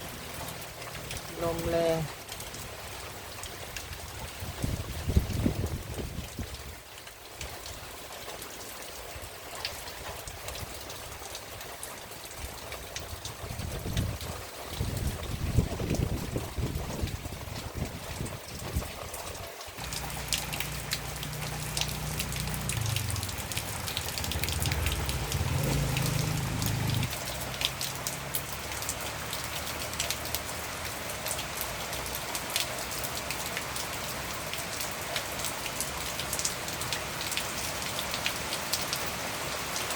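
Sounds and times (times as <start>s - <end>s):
steady rain falling: 0.0s - 39.9s
low rumble: 19.8s - 27.1s
drops ticking on a surface: 19.8s - 30.4s.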